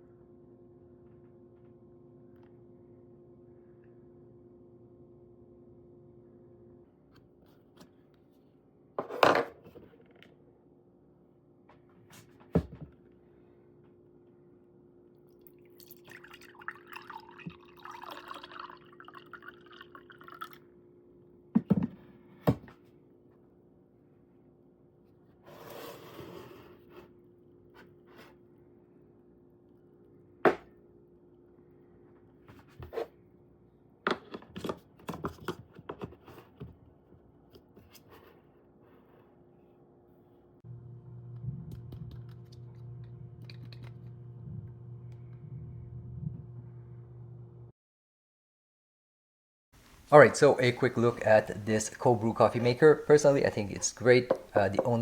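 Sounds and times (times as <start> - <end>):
faint hum: 0.0 - 8.9, 38.8 - 47.7
liquid pouring and splashing: 15.4 - 20.6.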